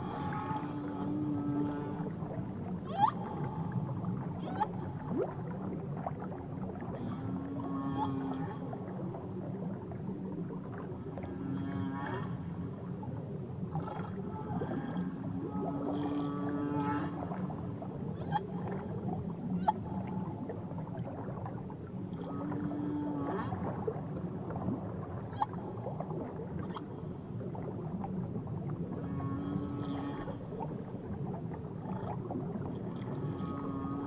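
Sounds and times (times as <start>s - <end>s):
whales calling underwater: 0.0s - 5.4s, 13.8s - 21.4s.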